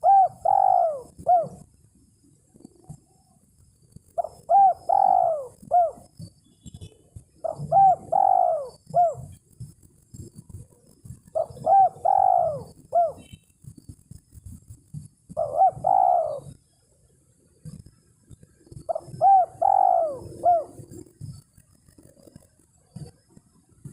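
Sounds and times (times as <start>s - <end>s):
dove cooing: 0.0s - 1.7s, 4.2s - 13.8s, 14.5s - 16.6s, 18.6s - 23.1s.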